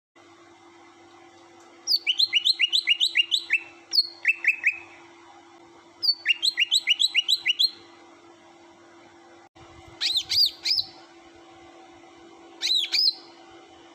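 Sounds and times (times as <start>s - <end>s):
bird singing whistled notes: 1.9s - 5.0s, 6.0s - 7.9s, 10.0s - 11.0s, 12.6s - 13.4s.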